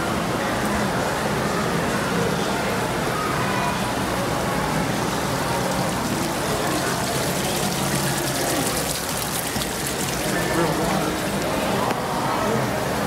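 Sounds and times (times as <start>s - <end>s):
faint voices or music: 0.0s - 13.0s
falling water rushing: 2.8s - 13.0s.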